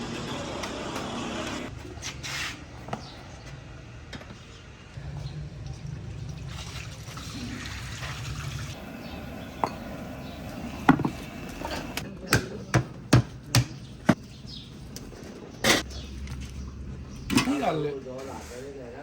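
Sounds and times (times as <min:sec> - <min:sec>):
kitchen tools knocking: 0:09.5 - 0:14.2.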